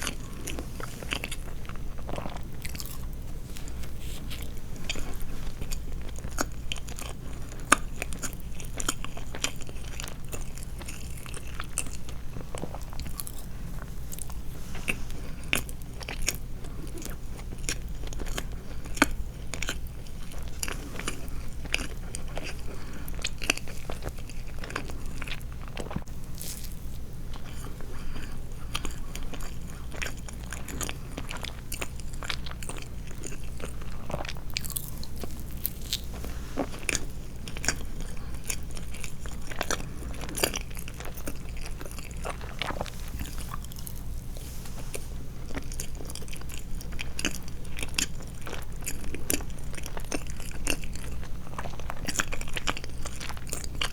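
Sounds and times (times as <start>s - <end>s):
person chewing soft sweets: 0.0s - 53.9s
steady low hum: 0.0s - 53.9s.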